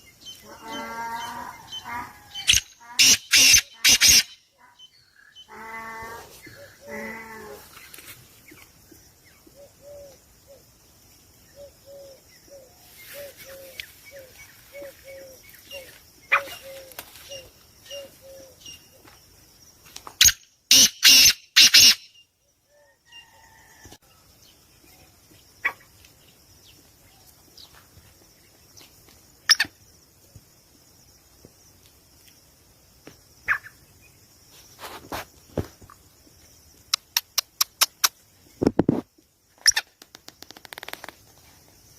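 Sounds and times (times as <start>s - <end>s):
high chirping: 0.2s - 5.5s
short repeated bird calls: 0.7s - 5.5s, 20.2s - 22.2s.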